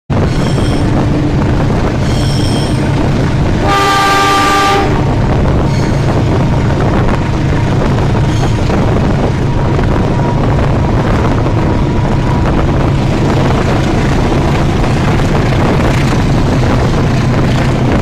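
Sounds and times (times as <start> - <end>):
locomotive engine rumbling: 0.1 - 18.0
locomotive horn: 3.5 - 5.3.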